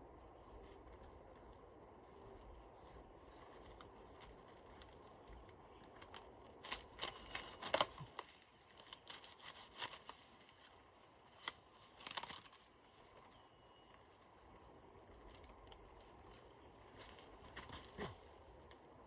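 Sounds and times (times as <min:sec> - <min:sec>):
cabbage leaves tearing: 0:03.6 - 0:12.7.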